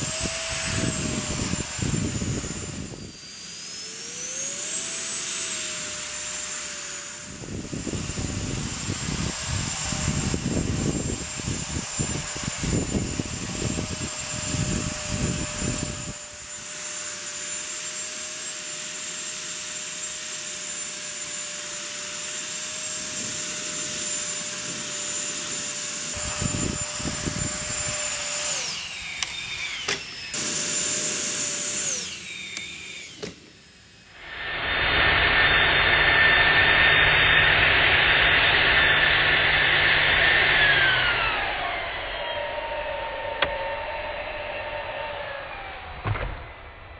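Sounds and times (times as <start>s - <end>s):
electric fan high whine: 0.0s - 46.9s
gusty rushing air: 26.1s - 28.1s.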